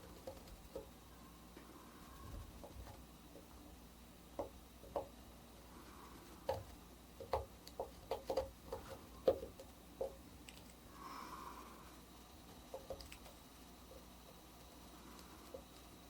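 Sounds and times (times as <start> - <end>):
etching needle ticks and scratches: 0.0 - 1.0, 6.2 - 10.8.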